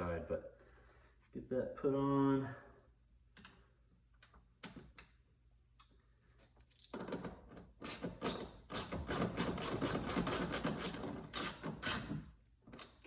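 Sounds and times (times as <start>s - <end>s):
hand ratchet clicking: 7.8s - 12.2s.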